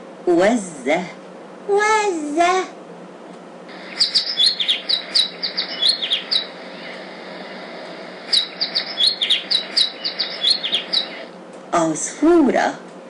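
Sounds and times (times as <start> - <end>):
small songbird chirping: 3.7 - 11.4
steady hiss: 3.7 - 11.4.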